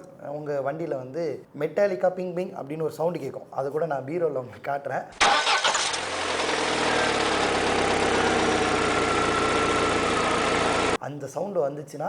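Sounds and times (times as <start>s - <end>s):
engine idling: 5.2s - 11.0s
engine knock pinging: 5.2s - 11.0s.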